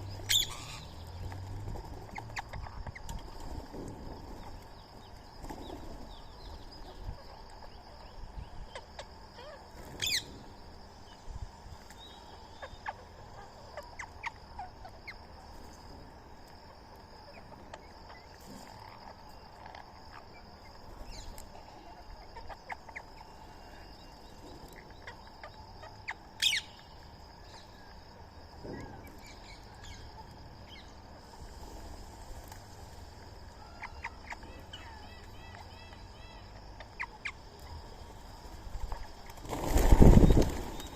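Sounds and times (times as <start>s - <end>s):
loud sharp bird calls: 0.0s - 3.6s, 8.5s - 10.4s, 20.1s - 27.8s
birds chirping: 0.0s - 15.3s, 17.3s - 40.9s.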